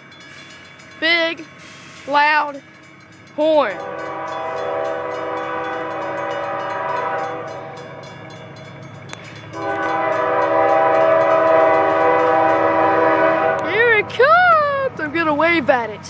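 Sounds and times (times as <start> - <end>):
low rumble of train: 0.0 - 16.0
train horn blast: 3.8 - 8.1, 9.5 - 14.1.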